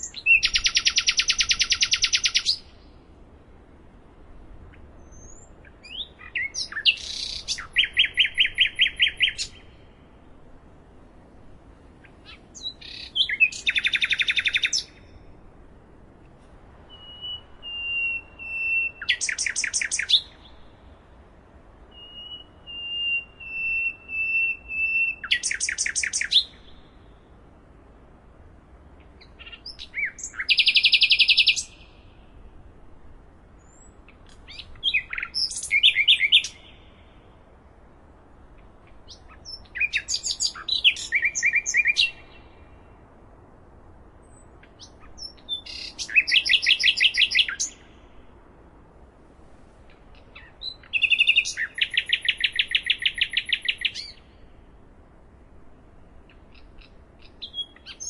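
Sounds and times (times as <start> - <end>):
songbird trilling: 0.0 - 2.7, 5.0 - 9.7, 12.2 - 15.1, 16.9 - 20.5, 21.9 - 26.8, 29.2 - 32.1, 33.6 - 37.1, 39.1 - 42.4, 44.3 - 48.1, 50.1 - 54.4, 56.3 - 58.0
faint background hiss: 0.0 - 58.0.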